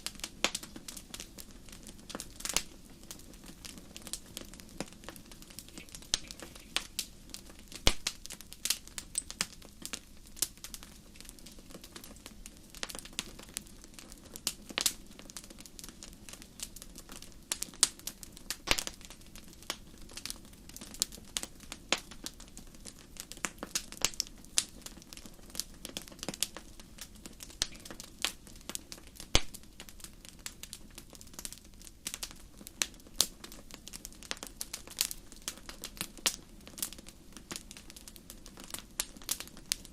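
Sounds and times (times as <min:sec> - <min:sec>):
flames hissing: 0:00.0 - 0:13.9
wood fire crackling and popping: 0:00.0 - 0:39.9.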